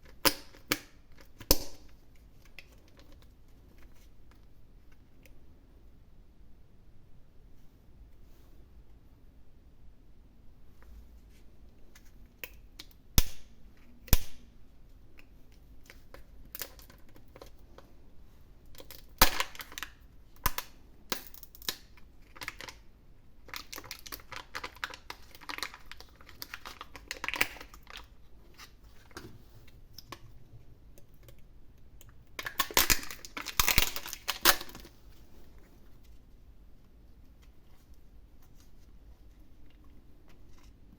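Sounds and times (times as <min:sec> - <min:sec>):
packaging crinkling: 0:23.4 - 0:29.2, 0:32.4 - 0:35.0.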